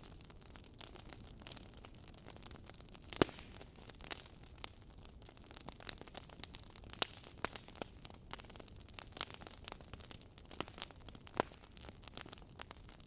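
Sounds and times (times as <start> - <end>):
logs crackling and popping: 0.0 - 13.0.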